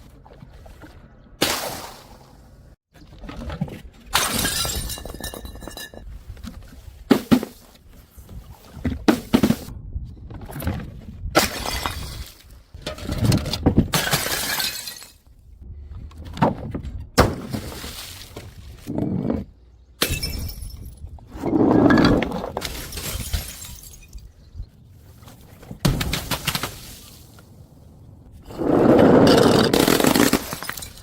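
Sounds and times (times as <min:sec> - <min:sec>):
glass bottles smashing: 0:04.2 - 0:06.1, 0:14.0 - 0:15.2, 0:20.0 - 0:21.0, 0:22.6 - 0:24.3, 0:29.8 - 0:31.0.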